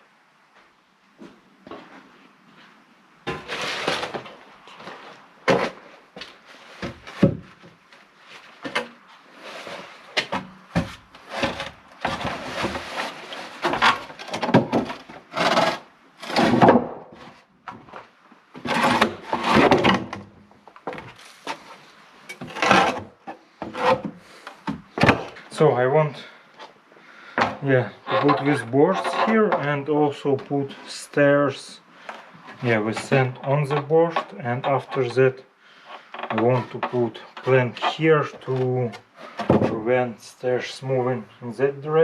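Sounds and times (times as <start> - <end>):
wood knocking and scraping on wood: 2.6 - 25.6, 26.5 - 30.8, 35.9 - 39.9.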